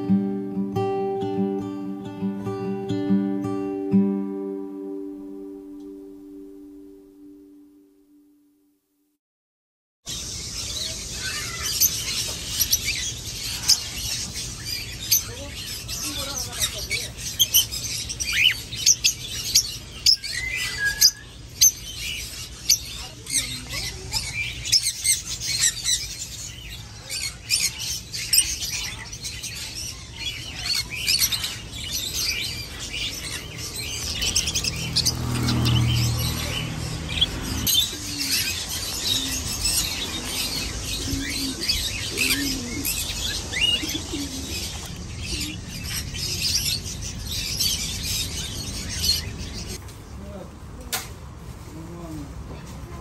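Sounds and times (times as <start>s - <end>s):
small birds chirping: 10.1s - 50.7s.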